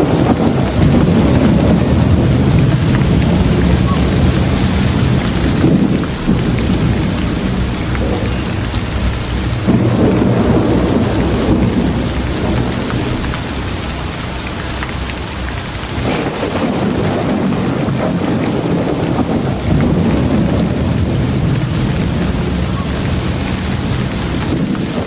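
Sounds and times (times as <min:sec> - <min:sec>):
deep low rumble: 0:00.0 - 0:25.0
heavy rain: 0:00.0 - 0:25.0.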